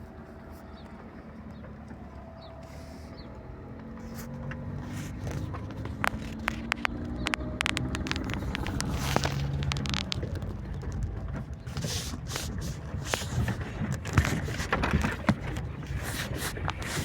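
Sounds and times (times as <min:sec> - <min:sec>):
vehicle engine running: 0:00.0 - 0:17.0
sharp clicks and knocks: 0:03.8 - 0:17.0.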